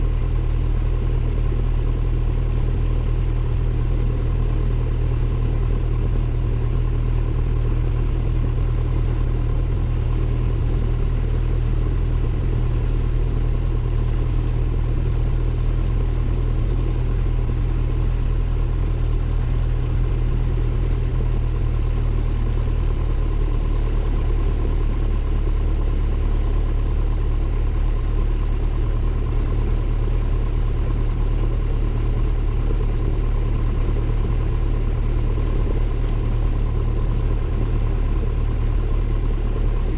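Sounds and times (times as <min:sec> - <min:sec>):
airplane engine drone: 0:00.0 - 0:39.9.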